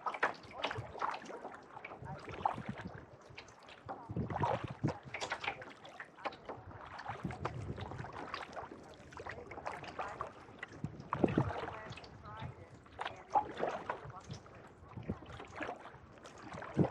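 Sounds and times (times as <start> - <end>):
paddle dipping into water: 0.0 - 16.9
water splashing: 0.0 - 16.9.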